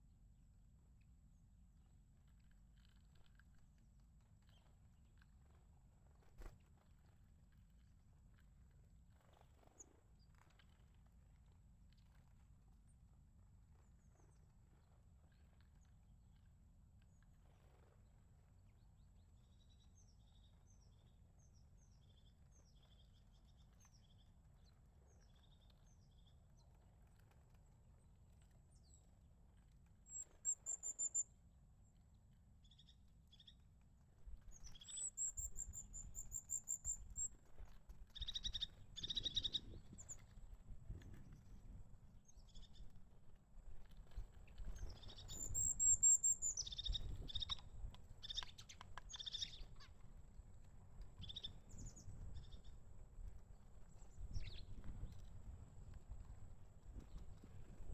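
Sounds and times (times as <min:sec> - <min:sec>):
tits calling high trills: 0:44.9 - 0:47.6, 0:48.2 - 0:49.9.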